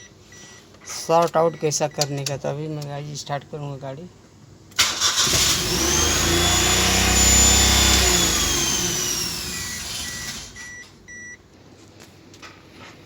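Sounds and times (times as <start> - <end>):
car engine running: 5.1 - 10.6
short electronic beeps: 9.4 - 11.4.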